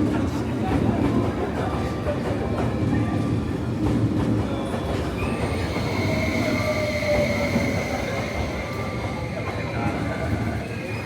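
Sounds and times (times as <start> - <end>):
train rumbling: 0.0 - 11.0
high wheel squeal: 5.2 - 11.0.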